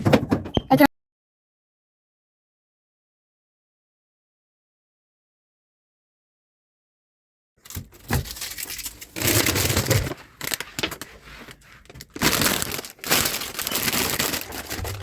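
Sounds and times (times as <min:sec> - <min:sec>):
packaging tearing and crumpling: 0:07.7 - 0:15.0.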